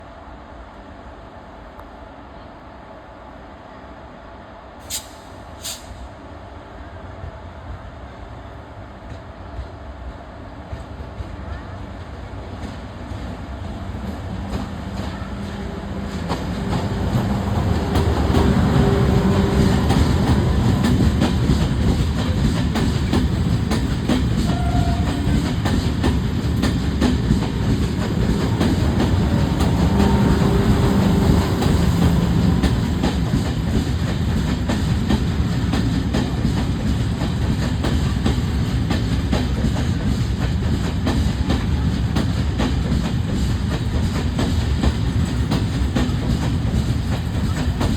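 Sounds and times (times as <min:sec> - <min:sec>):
train wheels clattering on rails: 0:12.5 - 0:47.9.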